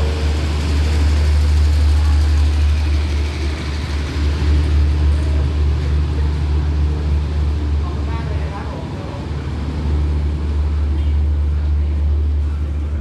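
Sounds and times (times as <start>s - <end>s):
diesel train rumbling: 0.0s - 13.0s.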